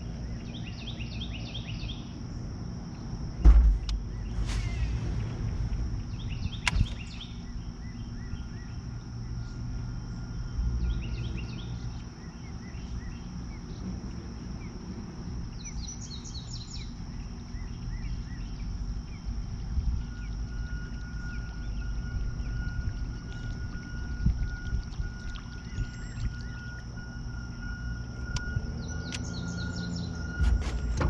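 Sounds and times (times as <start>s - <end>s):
small birds chirping: 2.9s - 14.8s, 15.5s - 27.7s, 28.5s - 30.9s
high-pitched whine: 2.9s - 31.0s
low rumble: 3.4s - 12.0s, 18.3s - 31.0s.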